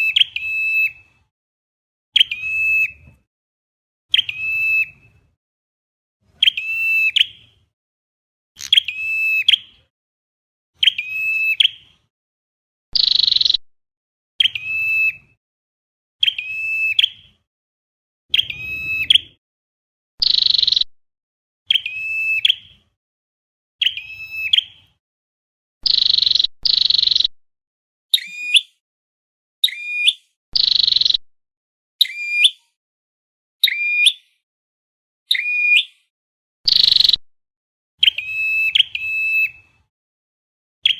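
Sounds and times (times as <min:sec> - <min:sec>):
bird calls: 0:00.0 - 0:01.1, 0:02.2 - 0:03.1, 0:04.1 - 0:05.2, 0:06.4 - 0:07.6, 0:08.6 - 0:09.9, 0:10.8 - 0:11.9, 0:13.0 - 0:13.6, 0:16.2 - 0:17.4, 0:18.3 - 0:19.4, 0:20.2 - 0:20.9, 0:21.7 - 0:22.8, 0:23.8 - 0:25.0, 0:25.8 - 0:27.3, 0:28.1 - 0:28.8, 0:36.7 - 0:37.2, 0:38.0 - 0:39.7.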